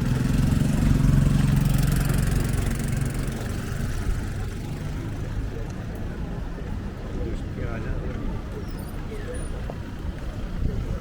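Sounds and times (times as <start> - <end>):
vehicle engine running: 0.0 - 5.5.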